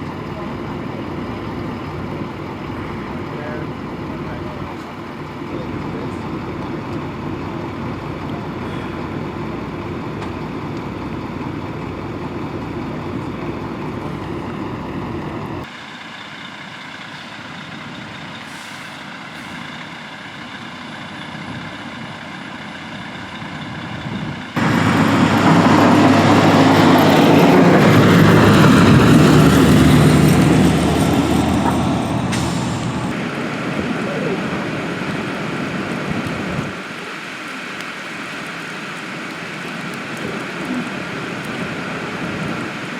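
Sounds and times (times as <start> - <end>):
highway traffic with trucks: 0.0 - 42.9
vehicle passing close: 24.6 - 36.8.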